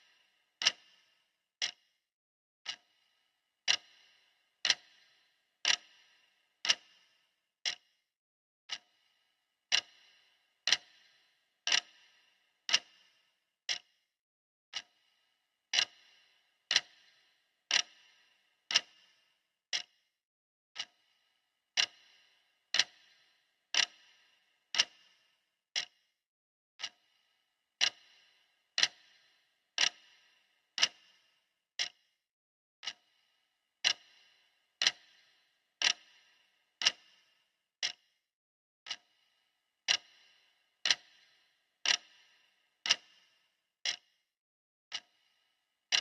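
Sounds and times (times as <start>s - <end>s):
clock ticking: 0.0s - 1.0s, 1.6s - 1.8s, 2.6s - 3.0s, 3.6s - 7.8s, 8.7s - 9.0s, 9.7s - 13.1s, 13.7s - 13.9s, 14.7s - 15.0s, 15.7s - 19.9s, 20.8s - 21.1s, 21.8s - 25.2s, 26.8s - 27.2s, 27.8s - 31.2s, 31.8s - 32.0s, 32.8s - 33.2s, 33.8s - 38.1s, 38.9s - 39.2s, 39.8s - 44.2s, 44.9s - 45.3s.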